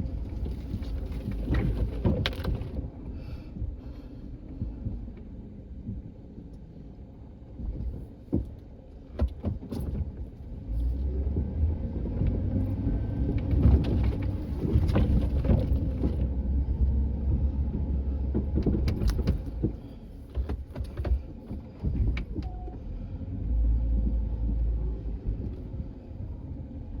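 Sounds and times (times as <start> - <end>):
vehicle engine running: 10.1 - 27.0.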